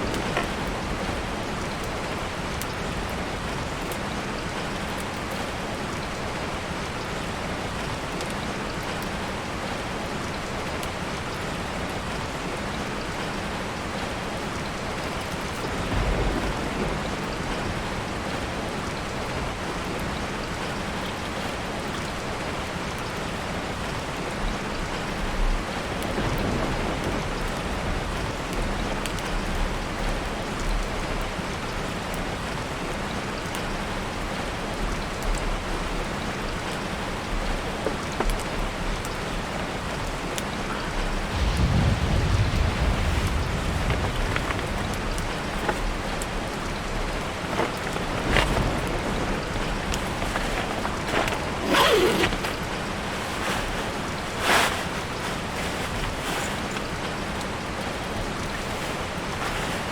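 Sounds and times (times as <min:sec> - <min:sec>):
heavy rain on a tarp: 0:00.0 - 0:59.9
low rumbles: 0:40.8 - 0:53.1.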